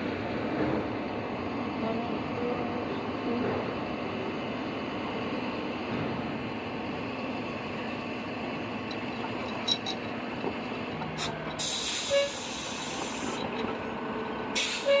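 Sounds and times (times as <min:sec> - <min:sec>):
heavy vehicle rumble: 0:00.0 - 0:15.0
air hiss: 0:11.2 - 0:13.4.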